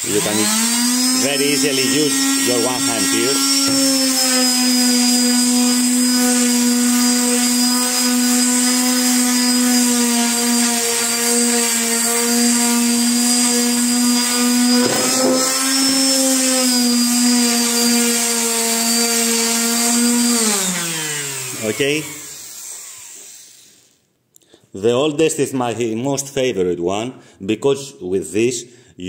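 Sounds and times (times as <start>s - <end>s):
electric sander humming: 0.0s - 23.7s
motor winding down: 0.0s - 23.8s.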